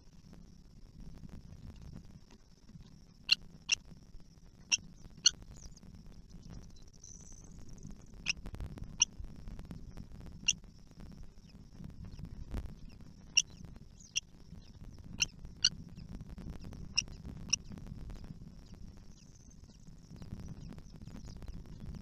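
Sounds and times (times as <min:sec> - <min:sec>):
faint steady high hiss: 0:00.0 - 0:22.0.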